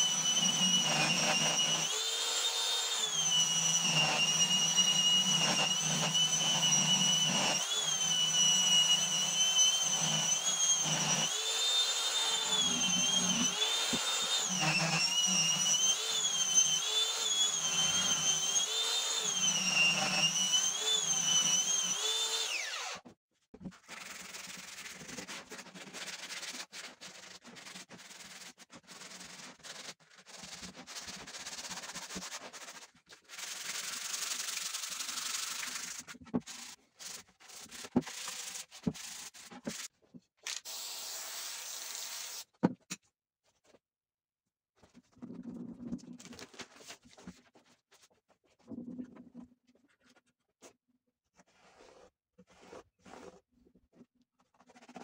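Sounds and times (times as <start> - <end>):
power sander whining: 0.0 - 23.0
rubbing and scratching on wood: 51.4 - 53.4.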